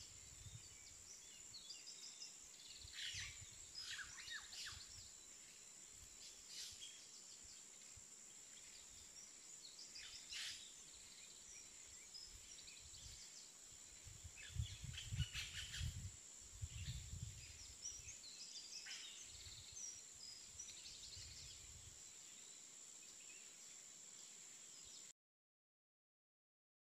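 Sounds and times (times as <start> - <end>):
bird chirps: 0.0 - 5.2, 8.6 - 13.5, 14.4 - 16.1, 16.7 - 21.6.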